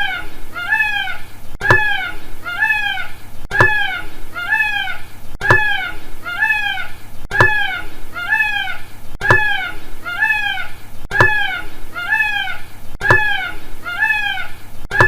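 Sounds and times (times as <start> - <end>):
peafowl calling: 0.0 - 15.0.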